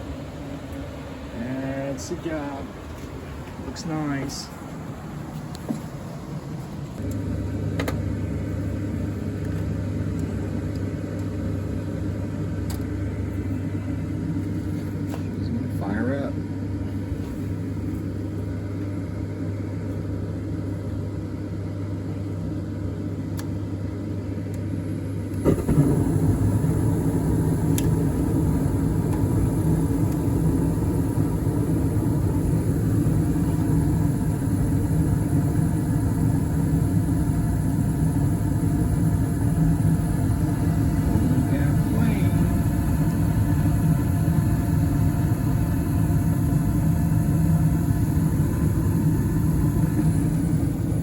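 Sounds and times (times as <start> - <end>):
furnace motor hum: 0.0 - 51.0
furnace rumbling: 0.0 - 51.0
burners lighting whoosh: 25.3 - 51.0.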